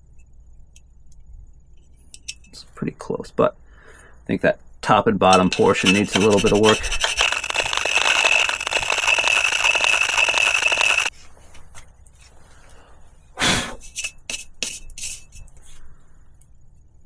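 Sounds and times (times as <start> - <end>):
hand file rasping on metal: 5.3 - 11.1.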